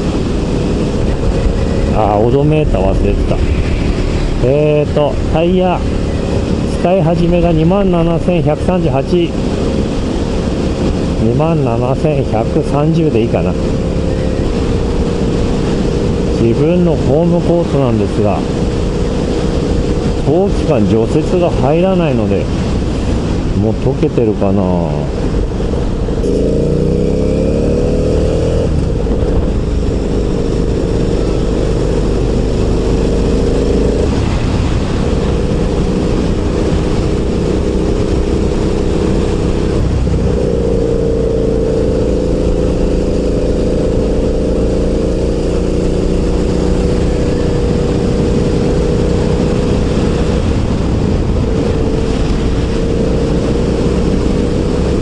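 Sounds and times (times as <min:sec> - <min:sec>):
wind noise: 0:00.0 - 0:55.0
motorcycle engine under way: 0:24.9 - 0:55.0.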